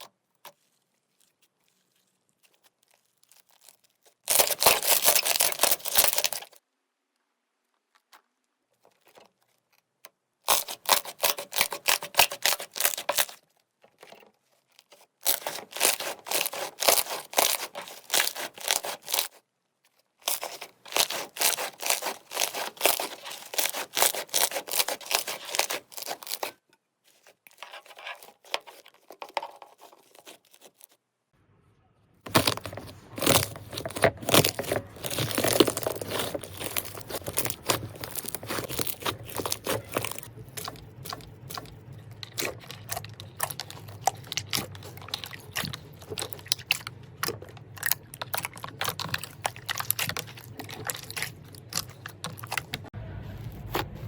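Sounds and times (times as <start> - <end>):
slime crackling and popping: 2.3 - 6.6, 10.5 - 13.4, 14.9 - 19.4, 20.2 - 26.6, 32.3 - 53.0.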